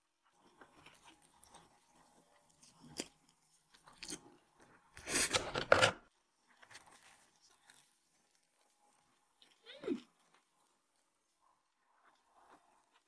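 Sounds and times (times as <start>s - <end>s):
person chewing food: 0.2s - 5.9s, 6.5s - 11.0s.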